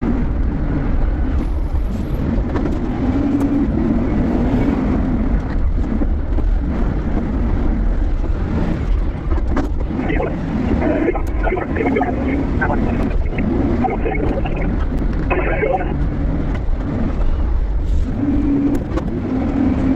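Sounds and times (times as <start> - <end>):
forklift engine humming: 9.0 - 17.0.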